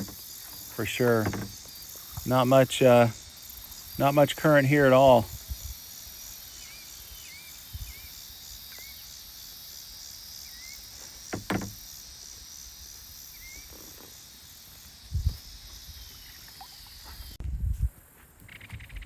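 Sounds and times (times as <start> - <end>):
paddle knocking and splashing: 0.0 - 2.3, 11.3 - 11.9
buzzing insect chorus: 0.0 - 17.4
bird chirps: 6.5 - 9.1, 13.3 - 14.1.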